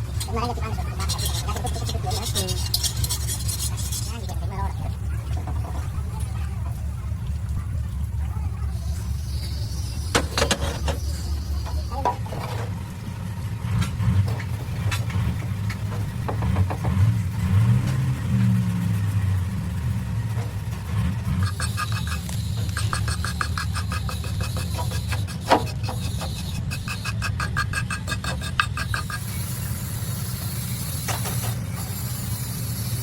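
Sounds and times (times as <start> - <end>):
motor running with low rumble: 0.0 - 33.0
fast even ticking: 21.4 - 30.4.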